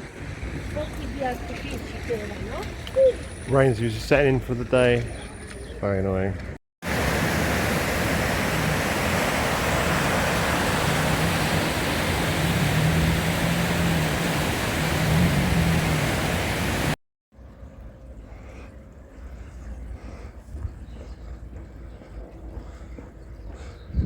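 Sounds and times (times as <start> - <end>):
quiet outdoor ambience: 0.0 - 23.9
rain hissing: 6.8 - 17.0.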